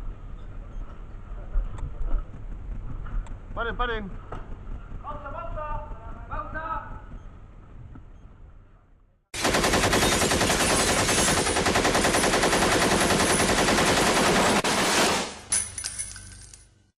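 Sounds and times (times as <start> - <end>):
rapid automatic gunfire: 9.4 - 15.4.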